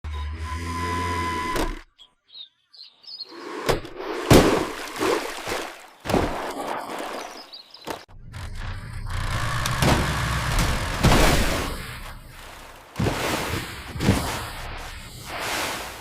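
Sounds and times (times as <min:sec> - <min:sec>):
birds chirping: 0:01.5 - 0:04.3, 0:05.2 - 0:08.2
thuds: 0:09.6 - 0:12.2.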